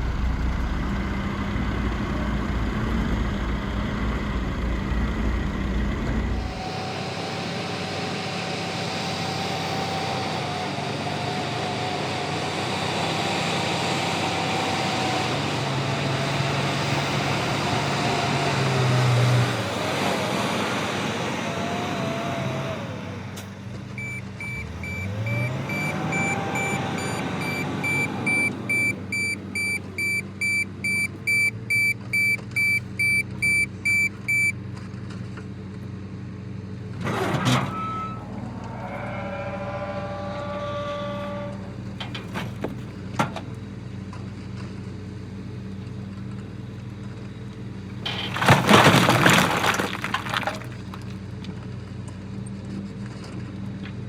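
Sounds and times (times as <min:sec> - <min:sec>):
hydraulic whine: 0:00.0 - 0:12.2, 0:15.9 - 0:31.7, 0:37.0 - 0:43.4
heavy diesel machinery running: 0:00.0 - 0:54.0
reversing alarm beeping: 0:24.0 - 0:34.6.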